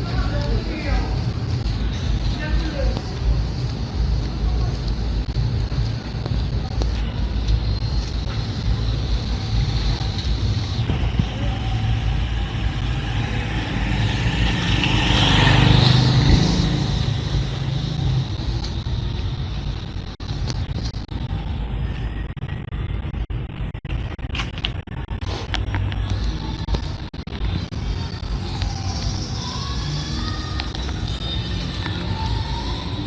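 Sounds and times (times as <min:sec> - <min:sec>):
street noise: 0:00.0 - 0:33.0
vehicle passing by: 0:09.9 - 0:18.7.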